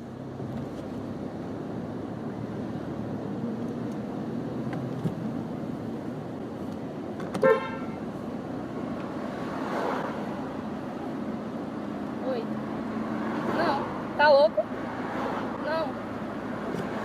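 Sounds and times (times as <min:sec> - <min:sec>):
street traffic: 0:00.0 - 0:17.0
car horn toot: 0:07.4 - 0:08.1.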